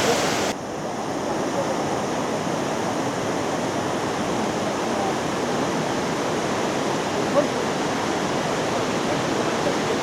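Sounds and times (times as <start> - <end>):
waterfall rushing: 0.0 - 0.5.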